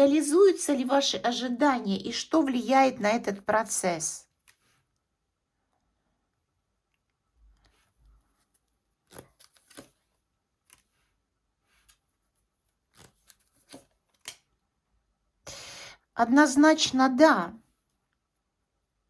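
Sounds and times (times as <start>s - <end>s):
cards snapping and sliding: 9.0s - 11.0s, 12.9s - 14.5s.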